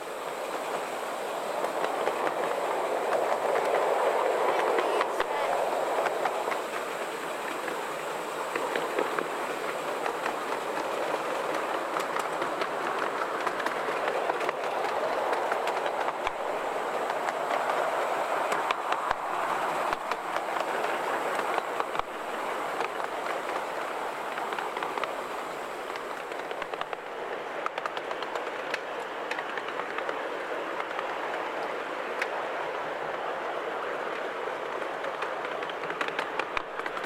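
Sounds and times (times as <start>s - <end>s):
wheels rumbling on rail: 0.0s - 37.0s
clicks from rail joints: 8.5s - 16.4s, 34.0s - 37.0s.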